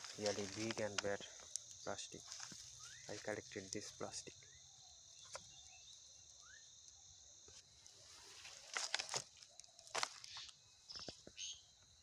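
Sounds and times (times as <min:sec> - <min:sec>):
rustles and crunches: 0:00.0 - 0:03.8, 0:07.5 - 0:11.4
crickets chirring: 0:00.0 - 0:12.0.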